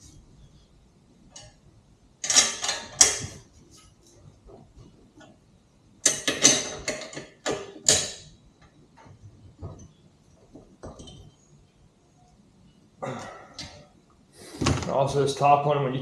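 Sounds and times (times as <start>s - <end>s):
hand tools clanking on metal: 2.2s - 3.4s, 6.0s - 8.3s.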